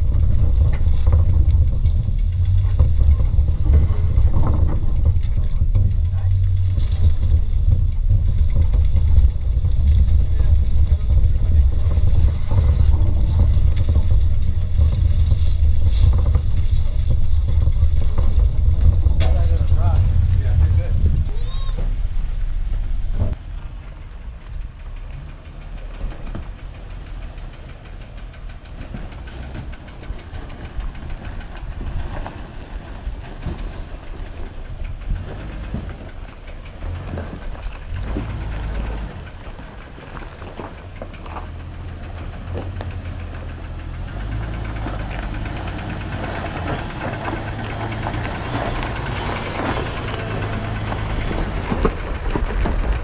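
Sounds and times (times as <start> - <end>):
off-road vehicle engine at low revs: 0.0 - 53.0.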